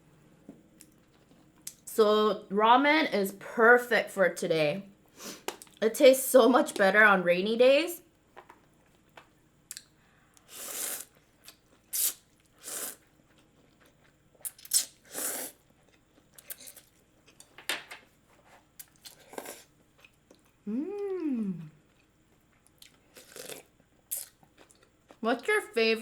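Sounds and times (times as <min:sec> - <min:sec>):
noodle slurping: 0:10.5 - 0:11.2, 0:11.9 - 0:13.0, 0:14.6 - 0:15.6.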